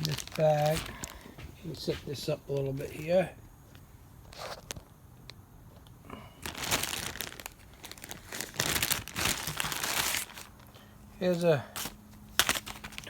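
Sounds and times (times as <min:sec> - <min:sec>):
plastic bag crinkling: 0:00.0 - 0:03.2, 0:06.2 - 0:13.0.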